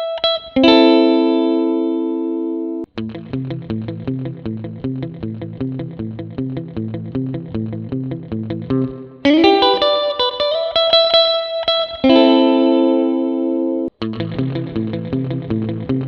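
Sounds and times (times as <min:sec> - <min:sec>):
surf electric guitar with reverb: 0:00.0 - 0:16.0.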